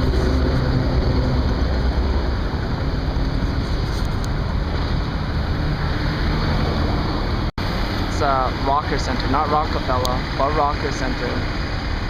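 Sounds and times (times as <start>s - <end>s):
deep rumble: 0.0s - 8.6s
rushing street noise: 0.0s - 12.0s.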